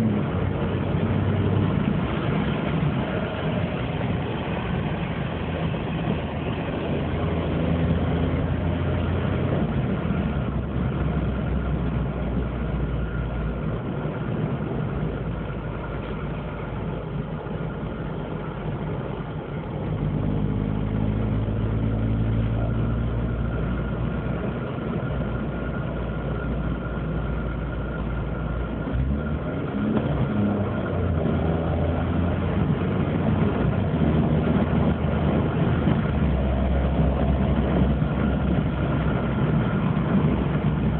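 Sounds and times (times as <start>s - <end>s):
car engine droning with broken exhaust: 0.0s - 40.9s.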